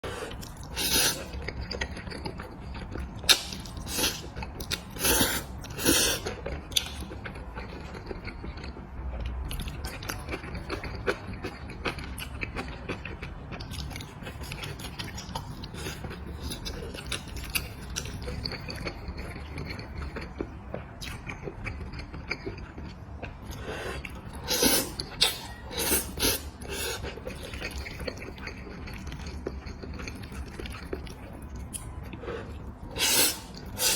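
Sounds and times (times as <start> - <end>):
low steady hum: 0.0 - 33.9
person biting and chewing food: 0.3 - 8.3.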